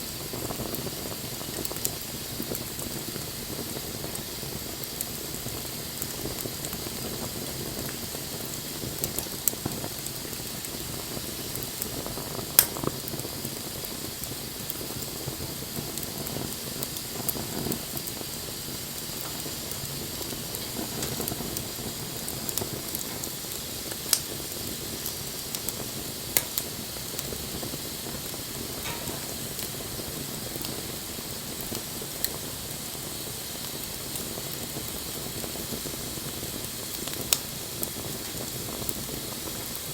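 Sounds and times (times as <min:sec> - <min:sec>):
campfire hiss and sizzle: 0:00.0 - 0:39.9
wood crackling pops: 0:12.6 - 0:13.2, 0:19.2 - 0:25.8, 0:26.4 - 0:26.7, 0:28.8 - 0:29.8.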